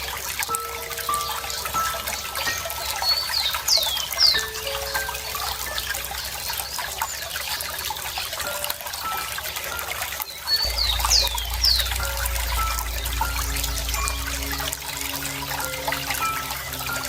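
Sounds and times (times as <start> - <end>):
birds calling: 0.0 - 17.0
water trickling: 0.0 - 17.0
low hum: 10.6 - 17.0.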